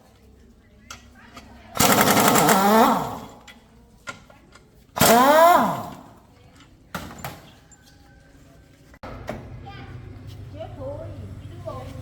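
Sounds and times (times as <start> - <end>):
handheld power tool spinning: 1.8 - 3.5, 5.0 - 6.2.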